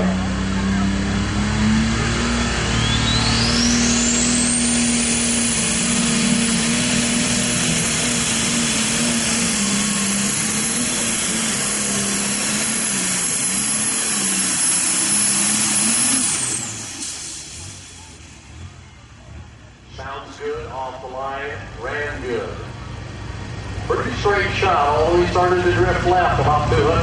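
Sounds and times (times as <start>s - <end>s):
tractor engine under full power: 0.0s - 27.0s
turbocharger whistle: 1.8s - 19.0s.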